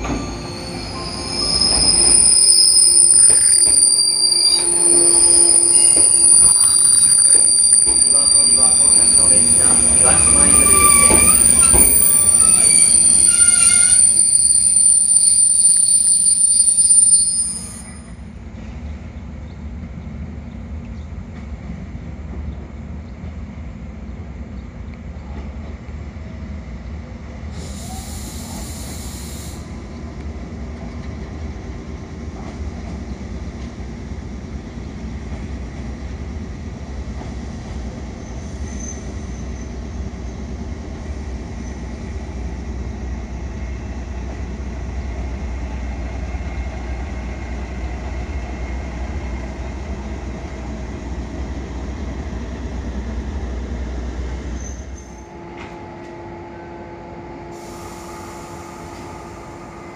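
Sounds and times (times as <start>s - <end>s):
train brakes squealing: 0.0s - 18.8s, 27.5s - 29.8s, 38.0s - 40.6s, 54.4s - 55.7s, 57.5s - 59.9s
train low hum: 0.0s - 59.9s.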